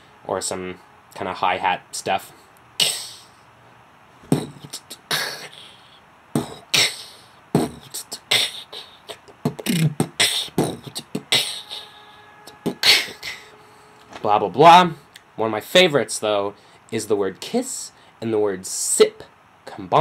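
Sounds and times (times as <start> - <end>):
beatboxing snare sounds: 2.8 - 3.3, 4.2 - 5.8, 6.4 - 11.9.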